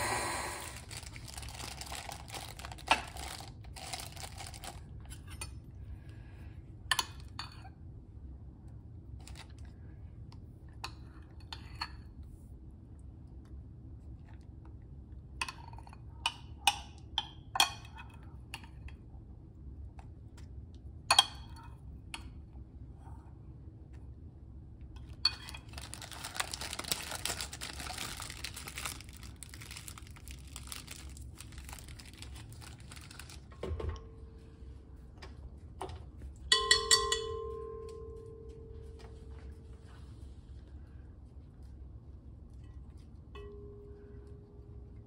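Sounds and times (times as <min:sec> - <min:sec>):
plastic bag crinkling: 0:00.0 - 0:05.0, 0:25.3 - 0:33.6.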